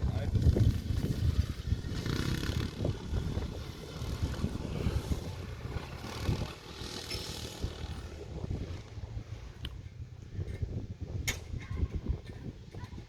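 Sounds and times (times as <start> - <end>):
motocross bike engines: 0.0 - 13.0.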